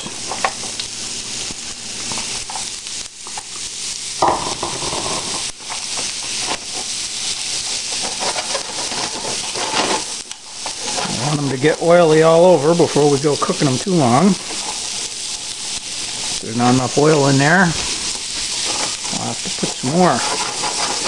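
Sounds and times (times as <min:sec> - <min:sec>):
vegetables sizzling in hot oil: 0:00.0 - 0:21.0
spatula scraping a pan: 0:04.3 - 0:12.2, 0:13.3 - 0:21.0.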